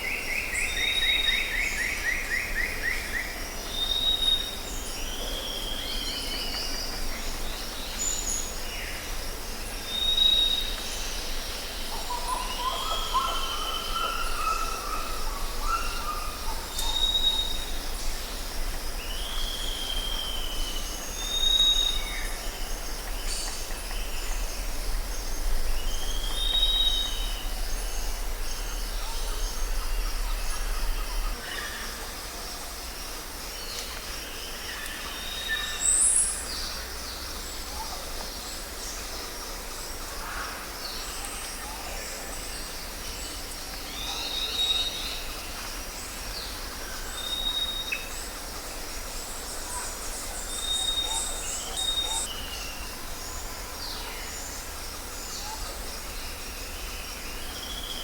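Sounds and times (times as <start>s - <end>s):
background hiss: 0.0s - 58.0s
steady low rumble: 22.7s - 31.4s.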